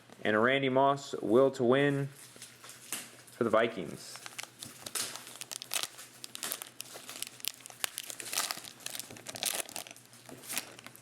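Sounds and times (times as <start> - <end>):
crinkling of pack wrappers: 4.1 - 11.0.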